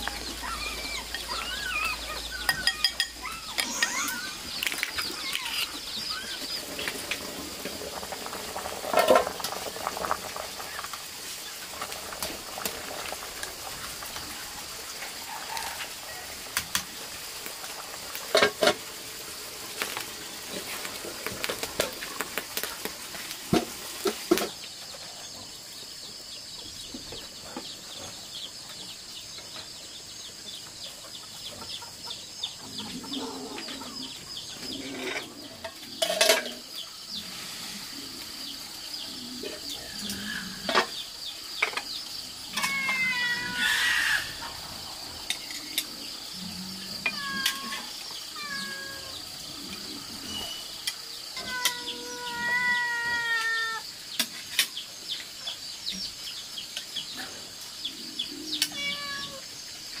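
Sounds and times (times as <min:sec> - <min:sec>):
wavering animal calls: 0:00.0 - 0:06.5, 0:42.5 - 0:44.7, 0:46.4 - 0:50.7.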